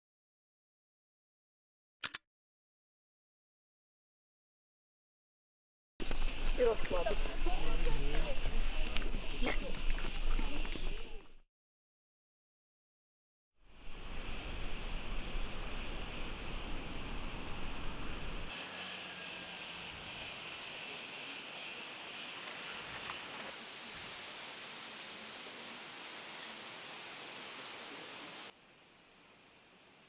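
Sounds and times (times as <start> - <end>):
insect chorus: 6.0 - 11.4, 13.6 - 30.0.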